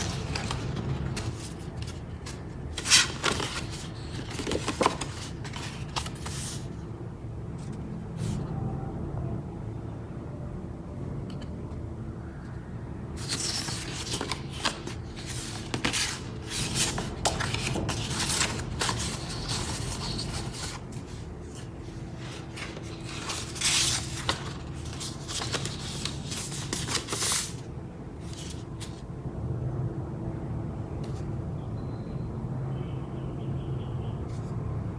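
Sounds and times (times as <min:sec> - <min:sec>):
packaging rustling and scraping: 0:00.0 - 0:06.8, 0:13.2 - 0:29.0.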